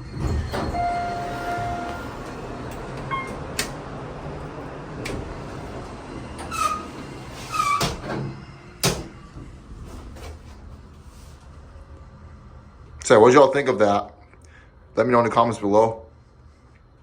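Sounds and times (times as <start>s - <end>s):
elevator clicks and clunks: 0.0s - 10.6s
elevator running with low rumble: 0.0s - 17.0s
short squeaks: 6.4s - 8.0s.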